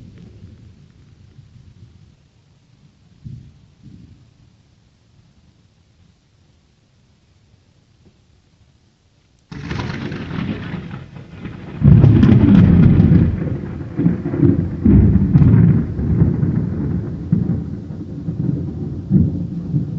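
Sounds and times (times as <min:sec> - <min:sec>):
thunder crash: 0:09.5 - 0:19.9
thunder rumbling: 0:09.5 - 0:19.9.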